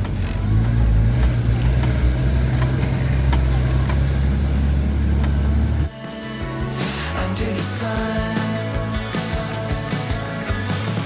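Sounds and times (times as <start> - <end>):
vehicle engine droning: 0.0 - 5.9.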